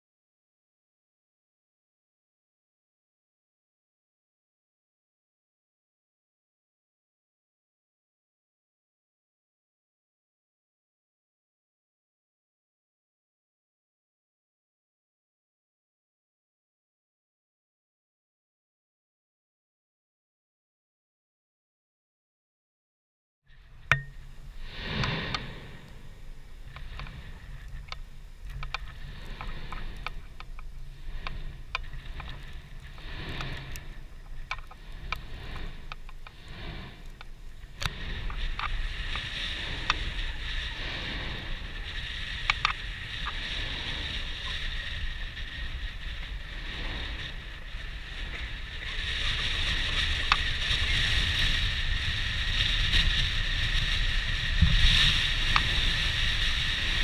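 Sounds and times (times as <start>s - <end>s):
volcano vent rumbling: 23.5s - 57.0s
volcano whoosh: 23.7s - 57.0s.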